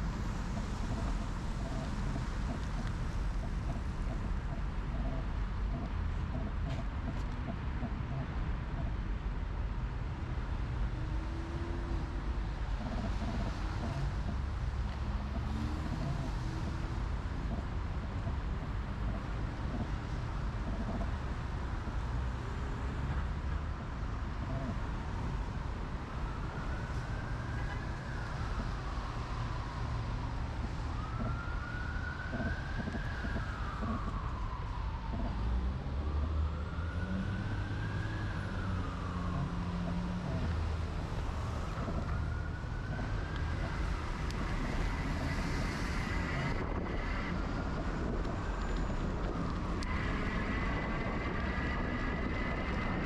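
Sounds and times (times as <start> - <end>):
road rumble: 0.0 - 53.0
wind: 0.0 - 53.0
emergency vehicle siren wailing: 10.9 - 53.0.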